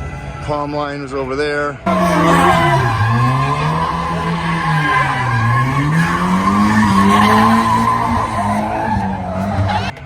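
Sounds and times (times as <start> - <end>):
car engine revving: 1.9 - 10.0
tyres skidding: 1.9 - 10.0.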